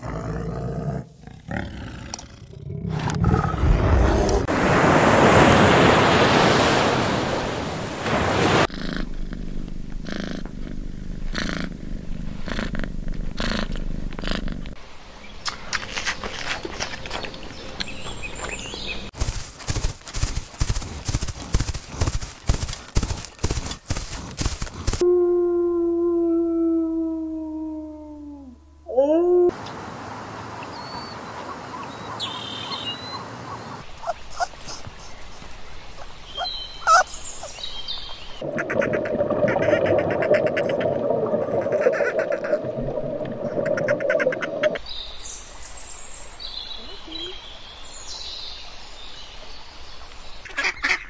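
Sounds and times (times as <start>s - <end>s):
horse hooves cantering on sand: 19.2s - 25.0s
bird chirping faintly: 30.6s - 38.4s
underwater noise: 33.9s - 44.8s.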